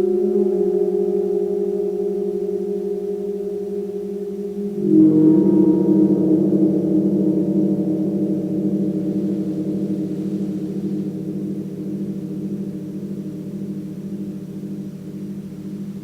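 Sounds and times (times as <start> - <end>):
gong ringing: 4.8 - 16.0.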